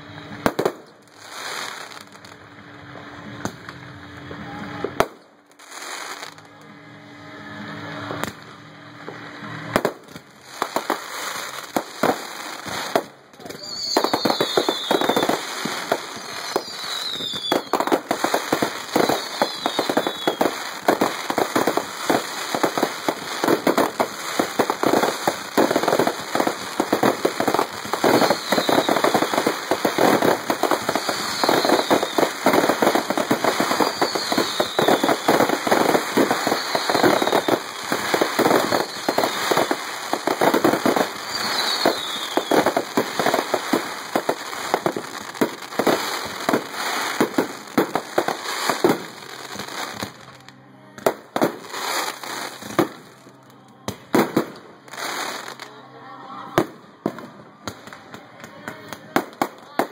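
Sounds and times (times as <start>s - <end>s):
fireworks bursting and crackling: 0.0s - 6.8s, 7.4s - 55.8s, 56.4s - 59.9s
high falling firework whistles: 13.5s - 45.0s.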